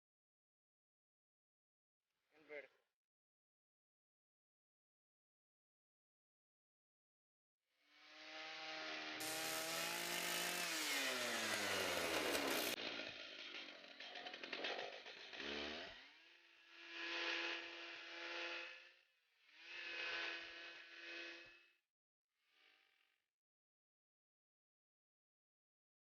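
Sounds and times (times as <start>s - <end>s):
chainsaw engine running: 7.9s - 21.8s.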